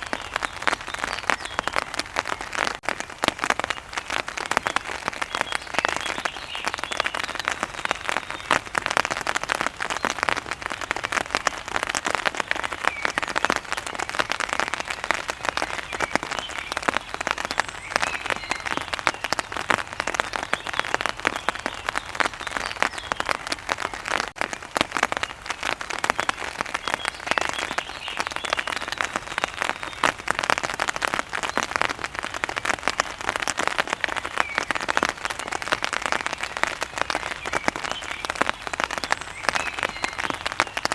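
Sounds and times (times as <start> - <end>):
heavy rain on hard surface: 0.0 - 40.9.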